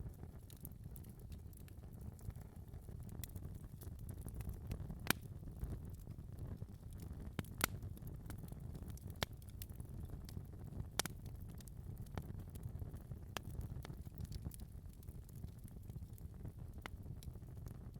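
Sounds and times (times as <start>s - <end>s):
wood fire crackling: 0.0s - 17.9s
sharp pops of fire: 3.2s - 5.3s, 7.0s - 11.2s.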